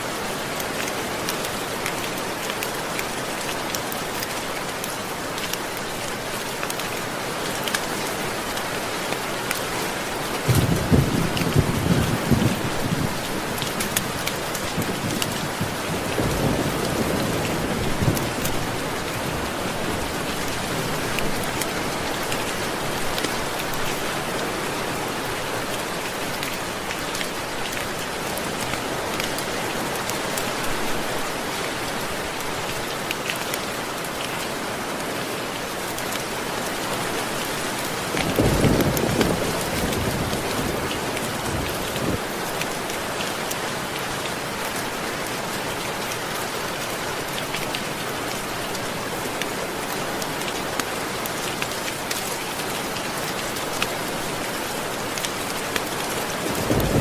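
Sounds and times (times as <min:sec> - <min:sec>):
heavy rain falling: 0:00.0 - 0:57.0
low rolls of thunder: 0:10.5 - 0:13.2, 0:56.4 - 0:57.0.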